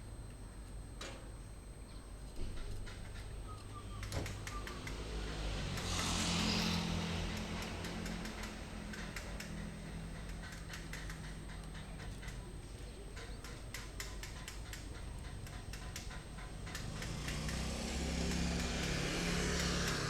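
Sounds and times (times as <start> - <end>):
steady low hum: 4.6 - 16.8
light clicks and ticks: 5.8 - 20.0.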